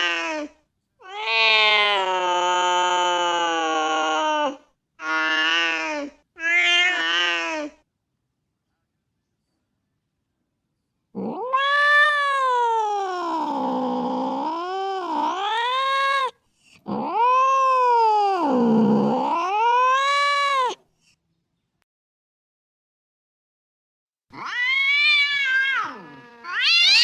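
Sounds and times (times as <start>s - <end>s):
cat yowling: 0.0s - 7.7s, 11.2s - 20.8s, 24.3s - 27.0s.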